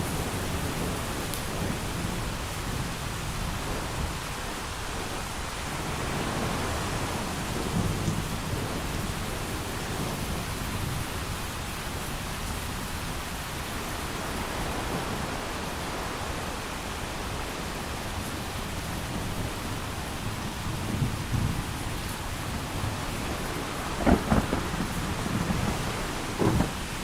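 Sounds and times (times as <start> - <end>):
heavy rain: 0.0 - 27.0
thunder rumbling: 19.1 - 27.0.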